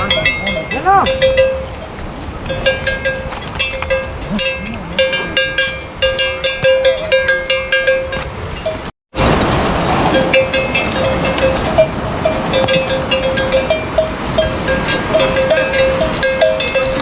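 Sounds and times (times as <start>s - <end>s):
livestock bells clanking: 0.0s - 8.9s, 10.0s - 17.0s.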